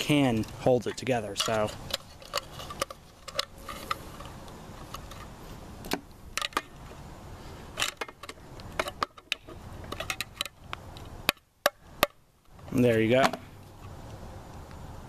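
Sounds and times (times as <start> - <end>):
metal parts clicking and knocking: 0.3 - 4.3.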